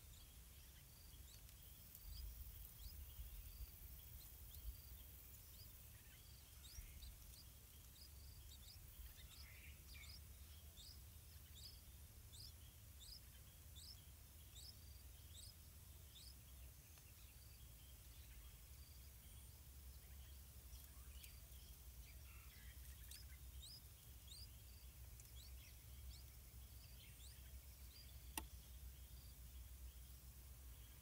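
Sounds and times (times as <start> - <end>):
faint high bird chirps: 0.0 - 31.0
sharp click: 28.3 - 28.5.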